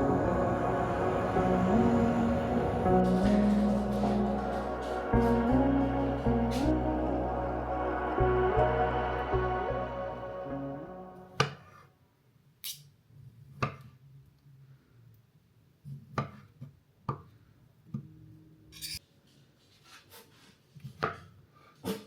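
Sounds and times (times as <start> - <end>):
background music: 0.0 - 11.5.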